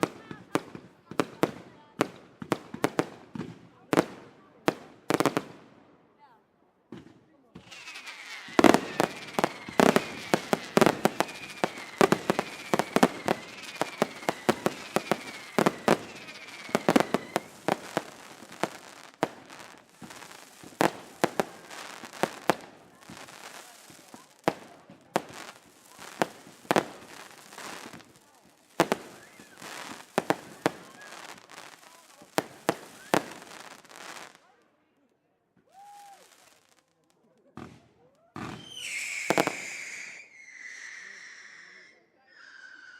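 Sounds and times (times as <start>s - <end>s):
fireworks exploding with sharp bangs: 0.0s - 5.9s, 6.9s - 34.6s, 35.6s - 41.0s
falling firework whistles: 7.6s - 18.8s, 28.8s - 31.4s, 32.7s - 33.4s, 38.4s - 42.9s.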